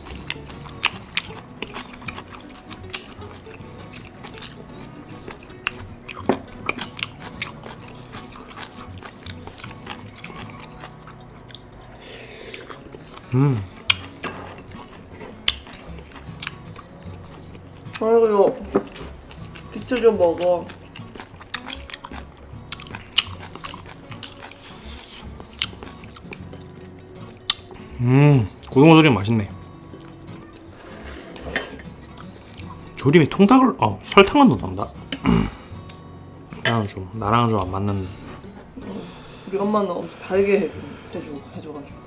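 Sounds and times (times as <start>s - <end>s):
chewing with sharp clicks: 0.0s - 18.0s, 18.9s - 27.8s, 29.9s - 30.7s, 32.1s - 33.0s.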